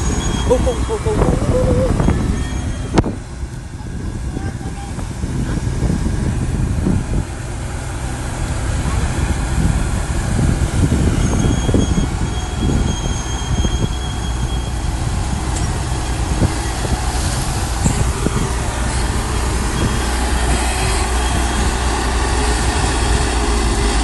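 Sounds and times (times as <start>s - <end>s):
high squeal from tracks: 0.0s - 3.0s, 10.9s - 17.2s, 17.8s - 24.0s
bulldozer diesel engine: 0.0s - 24.0s
steel tracks clanking: 11.0s - 24.0s.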